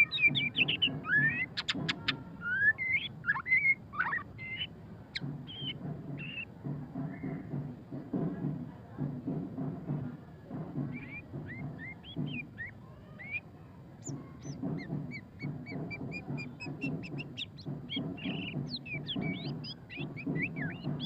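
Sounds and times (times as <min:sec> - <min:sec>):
bird singing whistled notes: 0:00.0 - 0:04.7, 0:05.5 - 0:07.5, 0:10.9 - 0:21.0.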